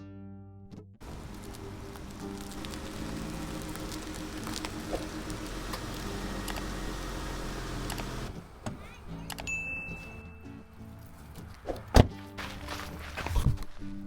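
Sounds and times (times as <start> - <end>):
rain pattering: 1.0 - 9.4.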